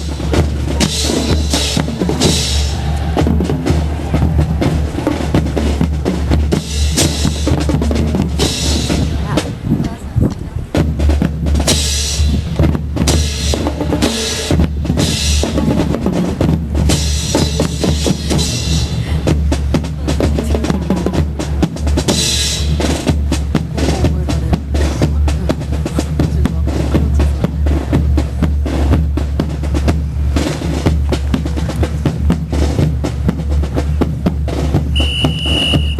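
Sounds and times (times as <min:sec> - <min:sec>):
drum-led music: 0:00.0 - 0:35.9.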